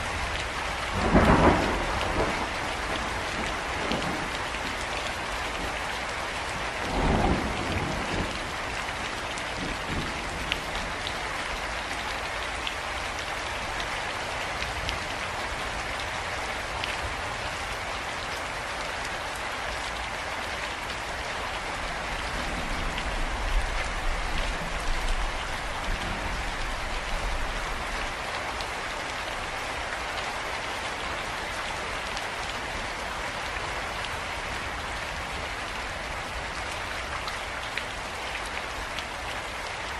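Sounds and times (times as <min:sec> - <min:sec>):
steady rain falling: 0:00.0 - 0:39.9
thunder rumbling: 0:01.0 - 0:04.3.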